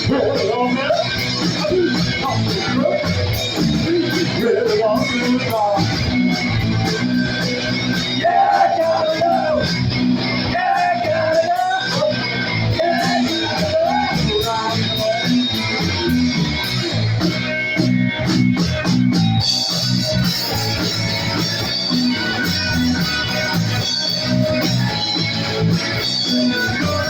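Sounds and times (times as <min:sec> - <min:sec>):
punk rock band playing: 0:00.0 - 0:27.0
wavering lead guitar line: 0:00.0 - 0:27.0.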